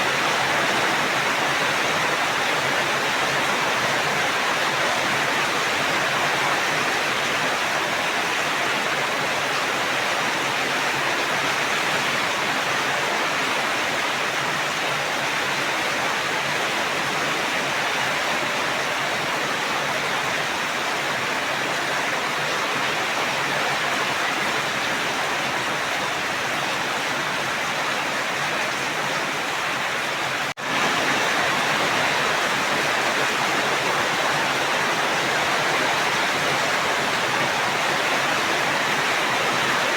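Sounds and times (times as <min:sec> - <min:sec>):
steady rain hiss: 0:29.4 - 0:39.9.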